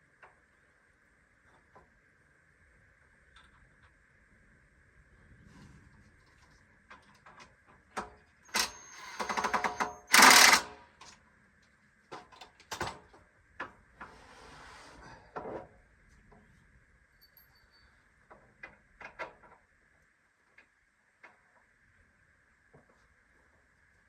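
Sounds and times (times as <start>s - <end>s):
rapid clicking: 8.5s - 10.7s
cordless drill driving screws: 8.5s - 10.8s.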